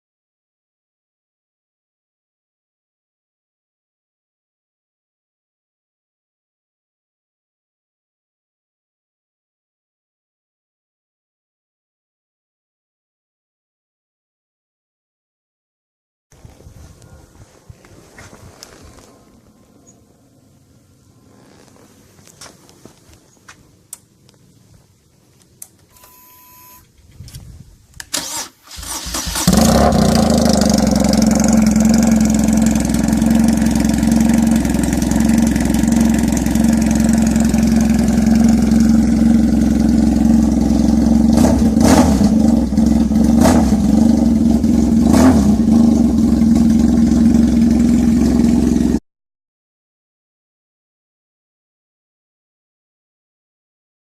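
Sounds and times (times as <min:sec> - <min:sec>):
short beep: 0:25.9 - 0:26.9
motorcycle engine starting and idling: 0:28.0 - 0:49.0.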